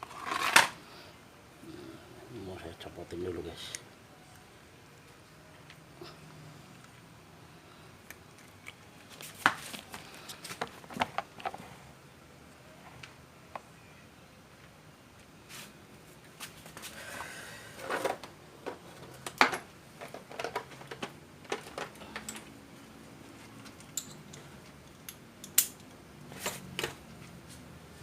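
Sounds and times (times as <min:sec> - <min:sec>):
clicks and knocks of parts: 0:17.8 - 0:22.6, 0:23.6 - 0:27.0.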